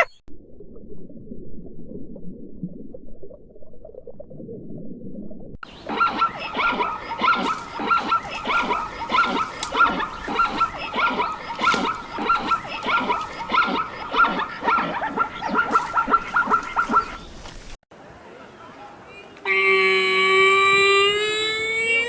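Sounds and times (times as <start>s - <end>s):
animal yelping: 5.7s - 17.3s.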